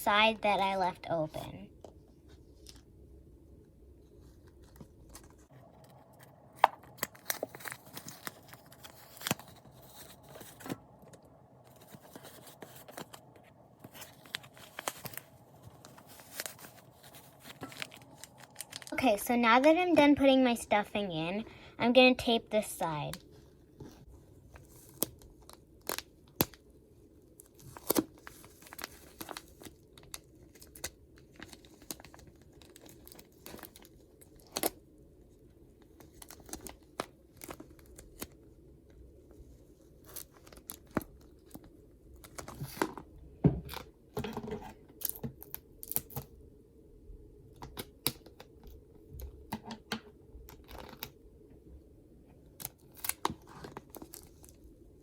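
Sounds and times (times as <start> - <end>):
paper crinkling: 4.2 - 19.0, 27.4 - 34.8.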